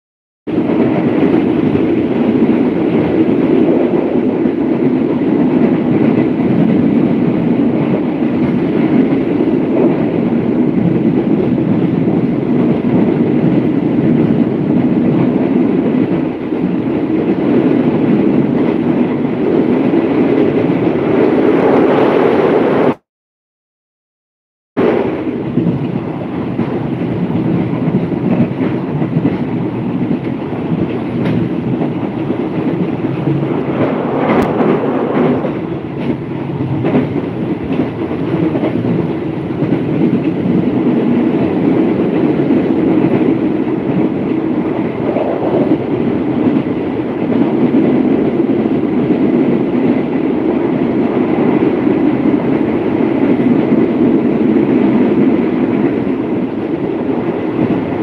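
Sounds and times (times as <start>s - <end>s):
train wheels on rails: 0.5s - 23.0s, 24.8s - 58.0s.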